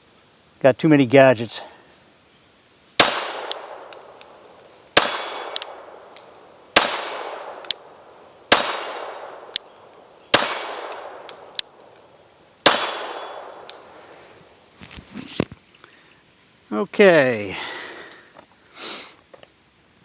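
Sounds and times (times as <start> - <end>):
pistol shots: 3.0 - 14.2
metallic ring: 3.0 - 14.4
small metallic clinks: 3.0 - 14.4.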